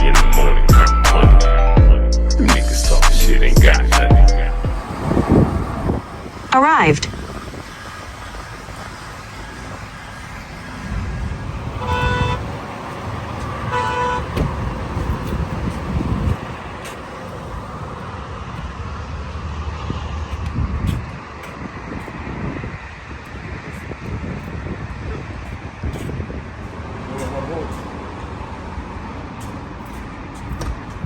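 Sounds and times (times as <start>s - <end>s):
road traffic rumble: 0.0s - 31.0s
car horn toots: 11.6s - 16.4s.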